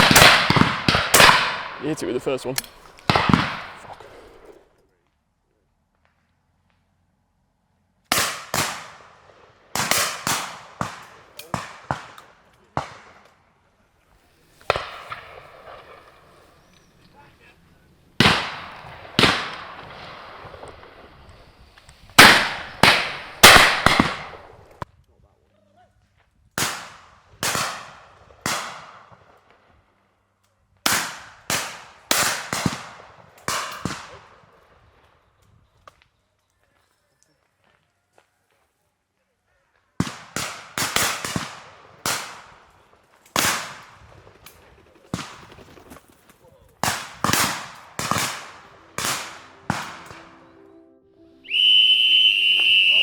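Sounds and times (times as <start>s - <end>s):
shotgun shots with echo: 0.0s - 4.5s, 8.1s - 13.2s, 18.2s - 20.7s, 22.2s - 24.8s, 30.9s - 34.3s, 40.0s - 42.6s, 46.8s - 50.4s.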